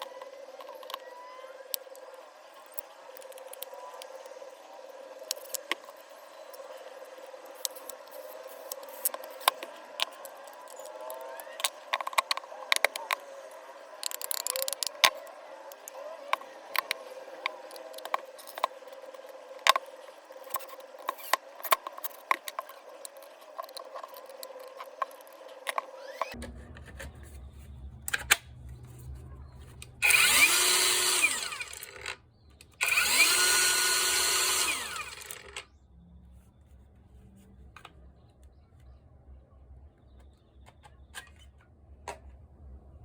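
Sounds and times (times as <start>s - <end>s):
clicks of small plastic and metal parts: 14.0s - 26.4s, 34.4s - 35.6s.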